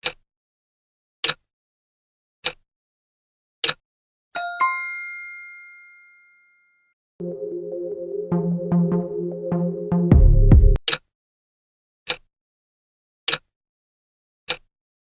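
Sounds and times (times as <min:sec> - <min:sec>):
two-stroke bell ding: 0:04.4 - 0:06.8
electronic music: 0:07.2 - 0:10.8
sharp countdown ticks: 0:08.3 - 0:10.8.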